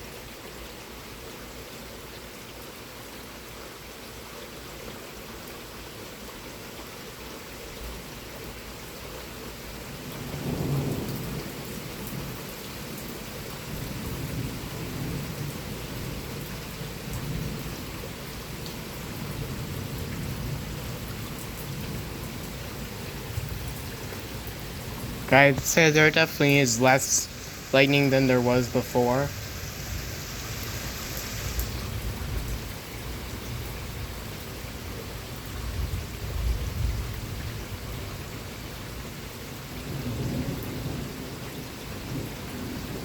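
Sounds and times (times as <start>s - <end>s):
rain falling steadily: 0.0s - 43.0s
thunder rumbling: 23.2s - 32.8s.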